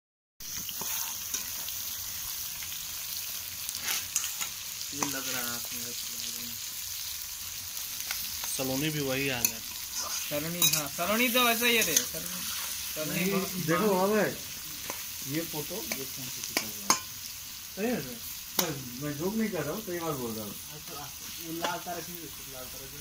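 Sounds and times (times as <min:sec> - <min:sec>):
onions sizzling in oil: 0:00.4 - 0:23.0
metal spatula scraping wok: 0:00.5 - 0:01.9, 0:03.7 - 0:05.4, 0:09.4 - 0:13.9
person's voice: 0:10.3 - 0:14.5.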